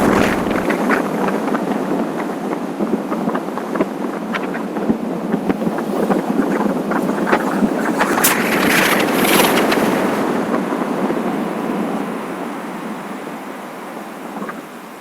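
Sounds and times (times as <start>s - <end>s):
road noise: 0.0s - 1.1s
wind buffeting microphone: 0.0s - 12.0s.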